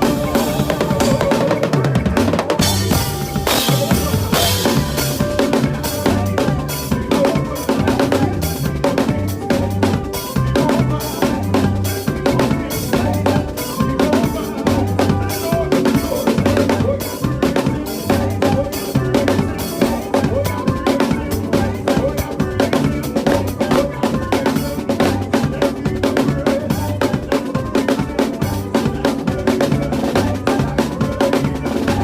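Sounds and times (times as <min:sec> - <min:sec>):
backing track with bass and keyboard: 0:00.0 - 0:32.0
drum kit playing fast: 0:00.0 - 0:32.0.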